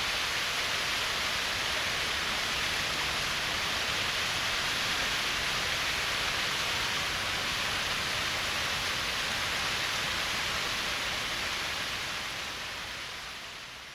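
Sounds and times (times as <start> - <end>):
waterfall pouring over rock: 0.0 - 13.9.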